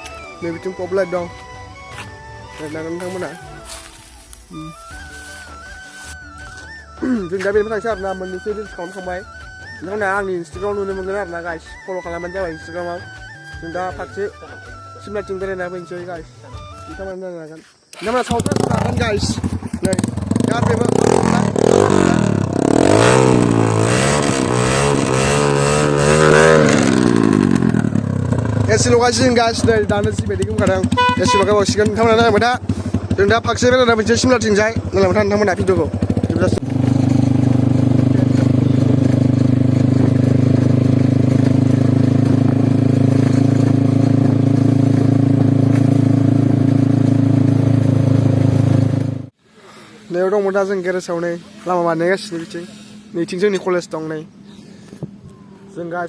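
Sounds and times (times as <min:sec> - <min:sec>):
motorcycle engine revving: 0:17.9 - 0:49.4.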